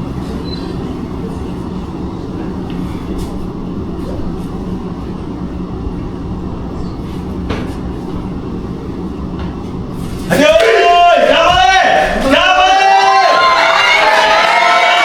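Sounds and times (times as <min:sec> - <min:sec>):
constant hum: 0:00.0 - 0:15.0
low mechanical rumble: 0:00.0 - 0:15.0
faint squeaks: 0:01.7 - 0:10.2.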